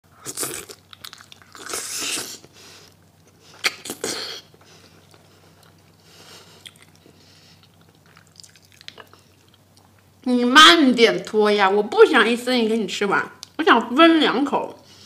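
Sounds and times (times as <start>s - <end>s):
biting and chewing food: 0.2s - 10.1s.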